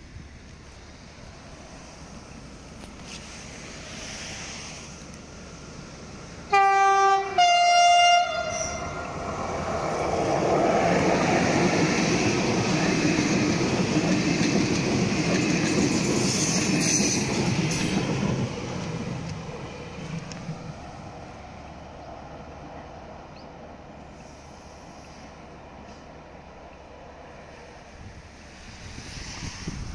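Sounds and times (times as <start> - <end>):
train wheels rumbling on rail: 0.0 - 29.9
train two-tone horn: 6.5 - 9.1.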